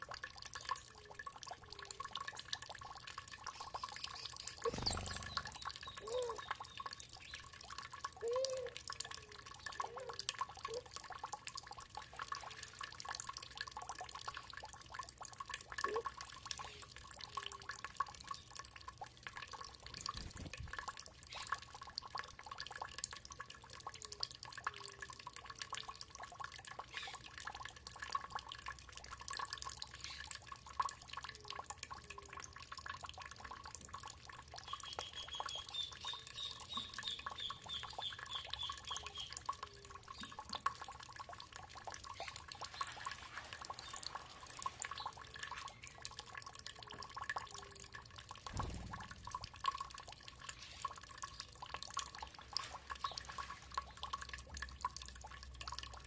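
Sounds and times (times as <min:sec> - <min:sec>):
water trickling and dripping: 0:00.0 - 0:56.0
songbird singing high notes: 0:04.2 - 0:06.9.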